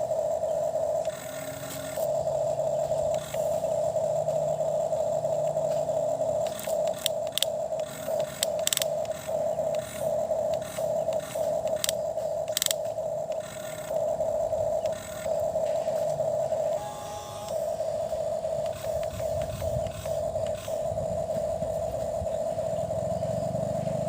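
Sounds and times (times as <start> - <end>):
toy electric motor whining: 0.7 - 22.2
sharp clicks: 1.0 - 4.4, 5.4 - 21.4.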